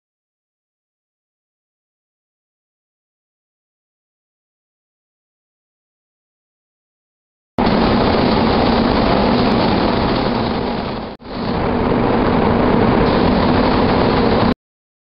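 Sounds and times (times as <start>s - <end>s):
spray painting air rushing: 7.6s - 14.5s.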